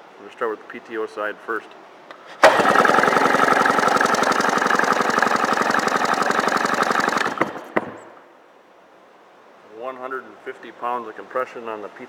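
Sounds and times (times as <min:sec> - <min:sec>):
engine cranking chugging: 0:02.4 - 0:08.2.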